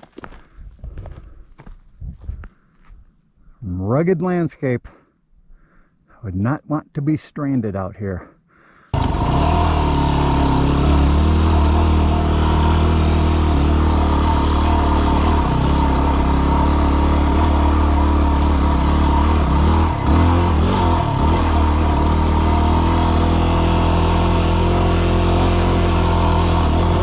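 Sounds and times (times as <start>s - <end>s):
motorcycle engine running: 9.0s - 27.0s.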